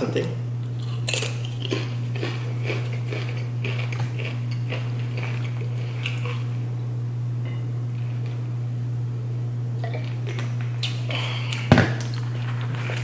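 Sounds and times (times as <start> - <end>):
steady low hum: 0.0 - 13.0
chewing crunchy chips: 0.6 - 6.6, 10.1 - 13.0.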